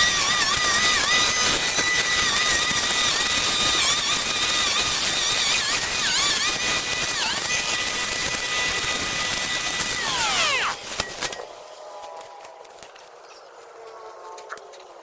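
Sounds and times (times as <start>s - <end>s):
brush cutter running: 0.0s - 11.6s.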